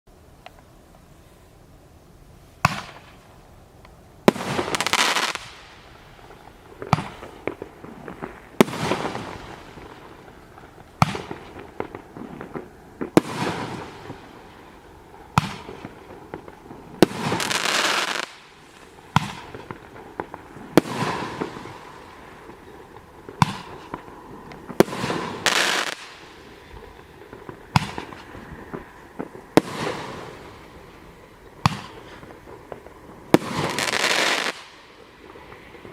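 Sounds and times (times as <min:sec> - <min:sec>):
roman candle firing pops and hiss: 0:06.8 - 0:14.3, 0:15.4 - 0:30.4, 0:31.5 - 0:34.8.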